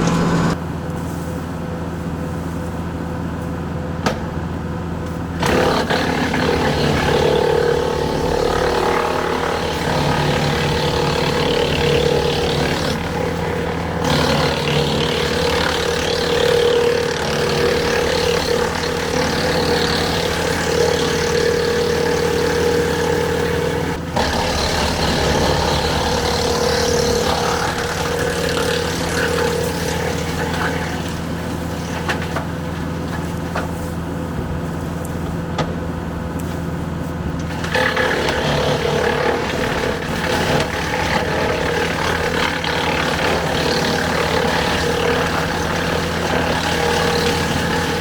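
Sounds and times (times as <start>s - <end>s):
tractor engine running: 0.0s - 0.6s
wood chipper rushing: 0.0s - 0.6s, 5.1s - 34.9s, 37.3s - 48.0s.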